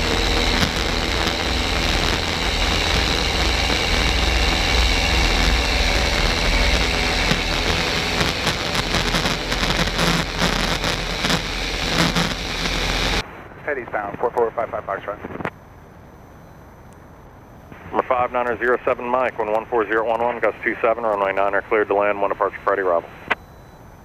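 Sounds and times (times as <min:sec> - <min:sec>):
plane piston engine running: 0:00.0 - 0:13.2.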